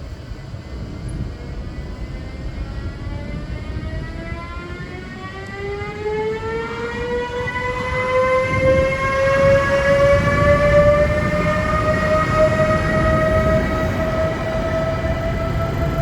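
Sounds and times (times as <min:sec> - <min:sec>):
locomotive motors whining: 0:00.0 - 0:16.0.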